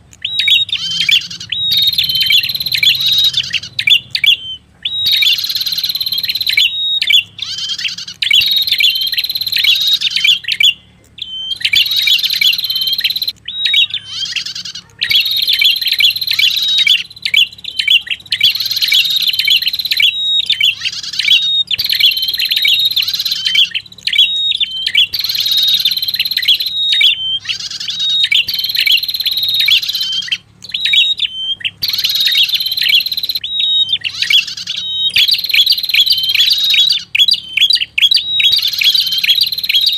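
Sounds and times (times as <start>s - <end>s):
bird call with rapid high chirps: 0.0s - 39.9s.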